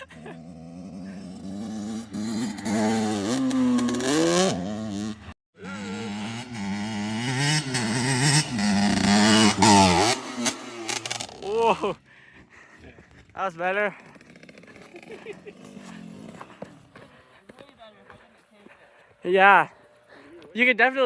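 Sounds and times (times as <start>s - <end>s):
dirt bike engine revving: 0.0s - 12.0s, 13.8s - 17.1s.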